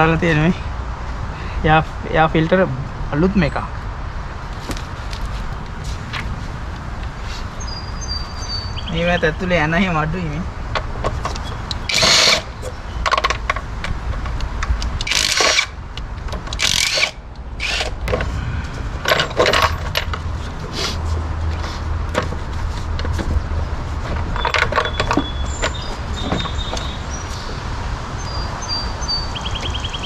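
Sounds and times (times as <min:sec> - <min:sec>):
metal tools clinking and scraping: 0:19.0 - 0:20.6.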